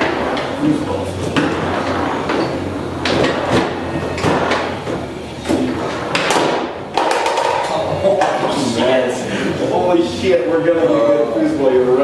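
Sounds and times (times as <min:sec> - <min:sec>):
foosball ball clacking: 0:00.0 - 0:00.6, 0:01.2 - 0:08.6
foosball rods sliding: 0:00.0 - 0:10.2.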